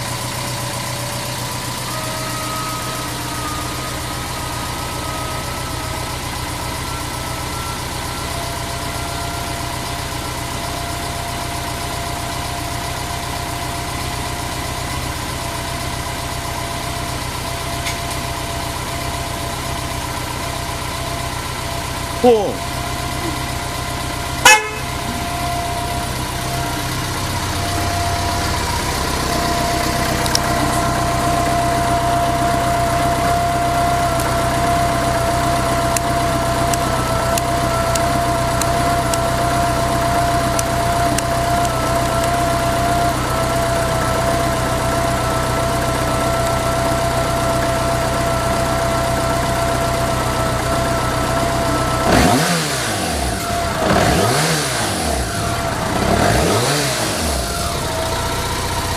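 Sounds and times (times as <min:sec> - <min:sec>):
motorcycle engine idling: 0:00.0 - 0:58.9
throttle blip revving: 0:24.4 - 0:25.1.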